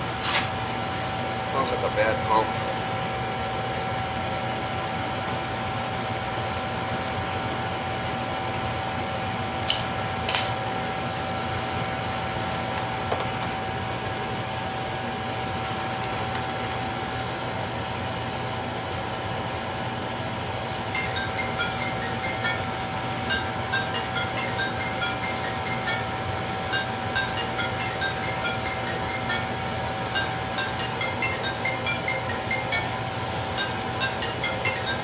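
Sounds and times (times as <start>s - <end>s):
oil burner roaring: 0.0s - 35.0s
high-pitched whine: 20.9s - 35.0s.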